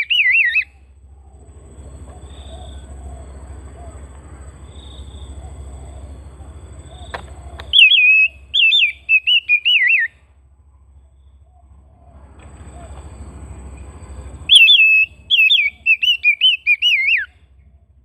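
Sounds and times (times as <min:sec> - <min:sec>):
bird singing whistled notes: 0:00.0 - 0:10.2, 0:12.7 - 0:17.8
low background hum: 0:00.0 - 0:18.0.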